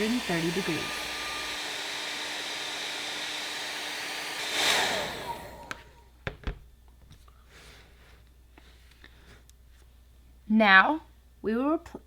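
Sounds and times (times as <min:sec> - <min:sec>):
hot-air blower motor hum: 0:00.0 - 0:06.1.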